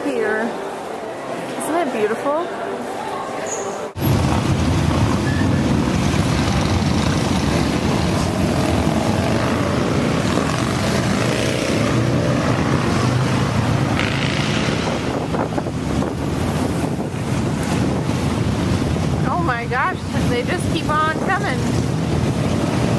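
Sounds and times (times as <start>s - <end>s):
motorcycles riding past: 4.0s - 19.2s, 20.0s - 22.9s.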